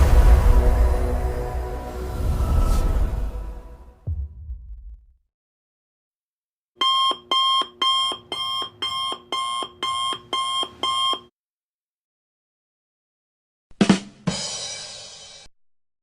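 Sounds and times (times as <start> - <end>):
electronic alarm beeping: 6.8 - 11.3.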